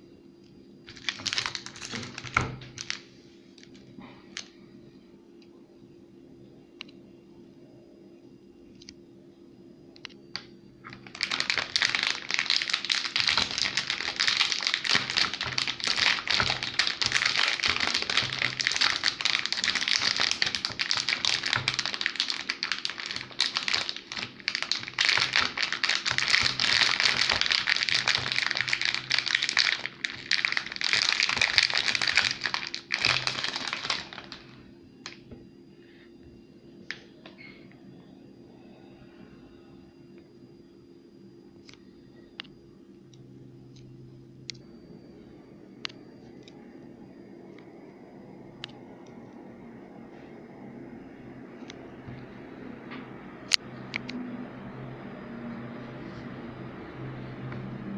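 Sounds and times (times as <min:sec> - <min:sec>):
wrapper crinkling: 0:00.9 - 0:03.1, 0:10.9 - 0:35.2.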